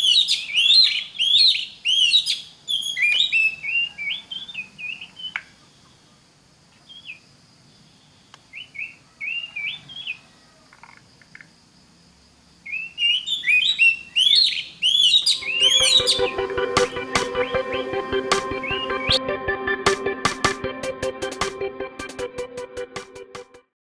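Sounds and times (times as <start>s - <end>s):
bird singing whistled notes: 0.0s - 5.0s, 12.7s - 16.3s.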